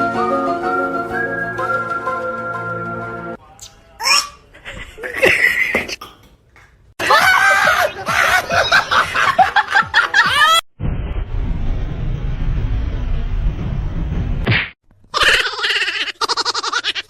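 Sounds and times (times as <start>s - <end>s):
people laughing: 4.5s - 5.9s, 7.0s - 10.6s
steady low rumbling noise: 10.8s - 14.5s.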